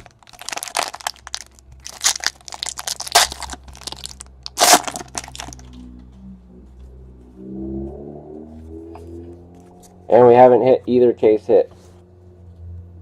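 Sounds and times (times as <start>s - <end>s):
wrapper crackling and crinkling: 0.0s - 5.7s.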